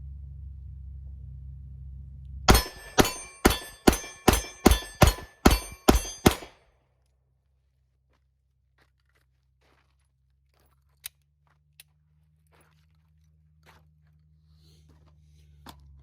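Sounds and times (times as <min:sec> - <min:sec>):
rapid gunfire: 0:02.5 - 0:06.6.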